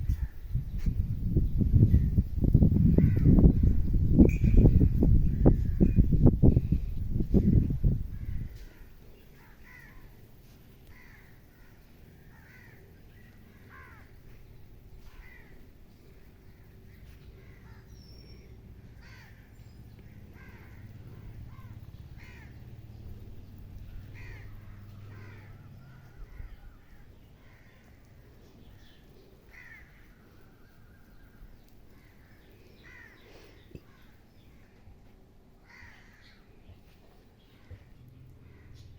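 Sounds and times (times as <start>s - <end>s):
birds calling: 2.8s - 34.9s, 35.6s - 38.9s
low background rumble: 11.0s - 30.0s.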